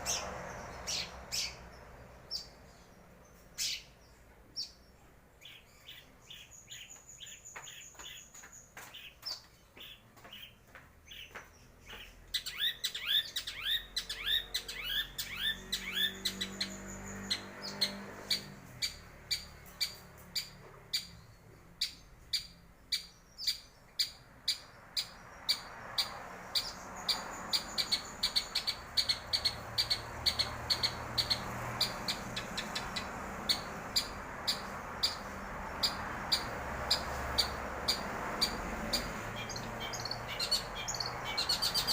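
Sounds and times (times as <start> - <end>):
bird singing sharp chirps: 11.9 - 41.9.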